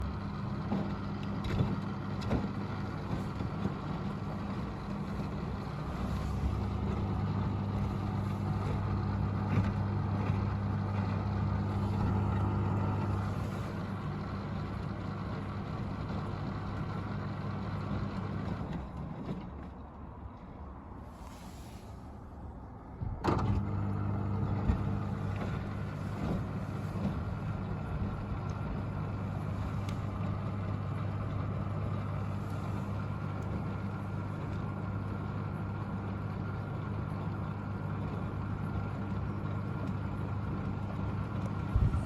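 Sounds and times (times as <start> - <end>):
washing machine motor hum: 0.0 - 19.2, 22.6 - 42.0.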